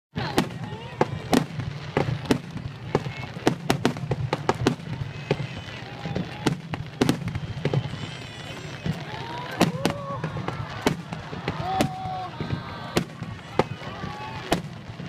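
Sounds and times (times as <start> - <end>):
fireworks bangs and crackles: 0.1 - 15.0
spectators calling out: 0.2 - 15.0.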